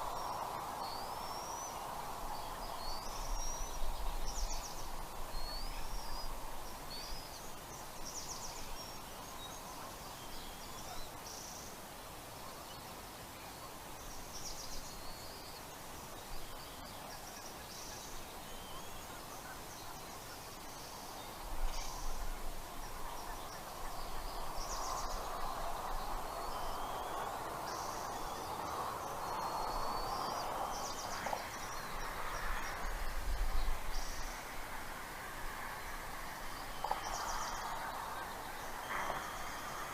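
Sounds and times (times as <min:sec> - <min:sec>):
wind noise on microphone: 0:00.0 - 0:09.0, 0:21.3 - 0:39.9.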